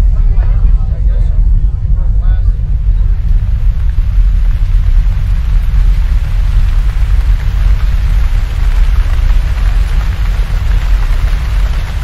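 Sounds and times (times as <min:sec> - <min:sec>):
deep rumble: 0:00.0 - 0:12.0
heavy rain: 0:02.6 - 0:12.0.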